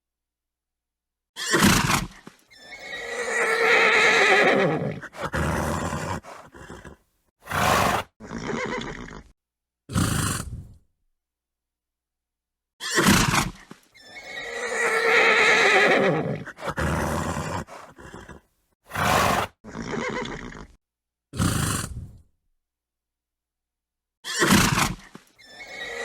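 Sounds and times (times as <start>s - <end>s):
horse whinnying: 1.4s - 9.3s, 12.8s - 20.8s, 24.2s - 26.0s
horse snorting: 1.5s - 9.3s, 9.9s - 10.8s, 13.0s - 20.8s, 21.4s - 22.2s.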